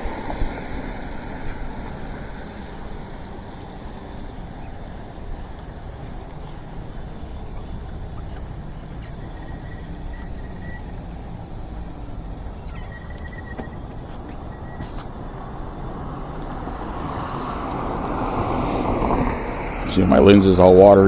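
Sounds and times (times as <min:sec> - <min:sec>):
wind rush: 0:00.0 - 0:07.4, 0:16.0 - 0:21.0
high-pitched whines: 0:00.0 - 0:21.0
tyre noise on wet pavement: 0:00.0 - 0:21.0.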